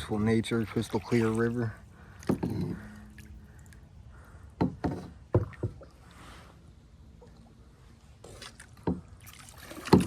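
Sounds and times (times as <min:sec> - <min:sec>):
water swishing: 0:00.0 - 0:04.3, 0:05.1 - 0:10.0
paddle knocks on kayak: 0:04.6 - 0:05.8.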